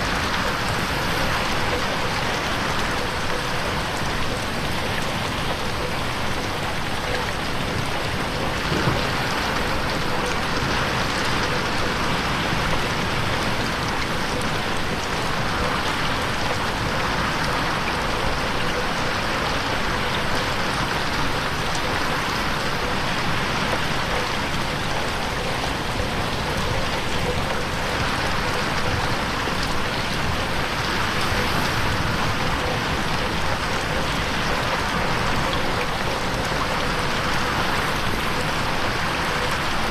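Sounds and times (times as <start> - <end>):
rain pattering on window: 0.0 - 39.9.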